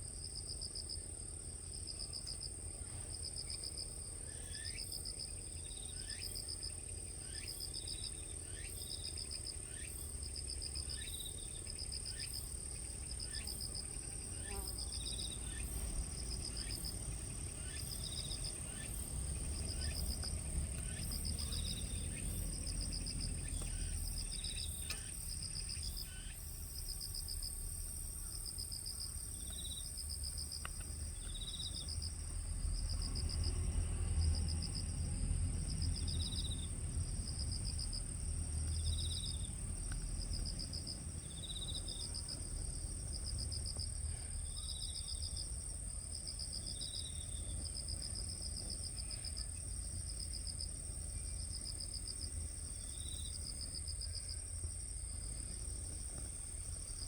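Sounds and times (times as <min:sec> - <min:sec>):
lower insect chirp: 0:00.0 - 0:57.0
insect high-pitched trill: 0:10.9 - 0:33.8
insect pulsed chirps: 0:10.9 - 0:33.8
steady low rumble: 0:15.8 - 0:44.6.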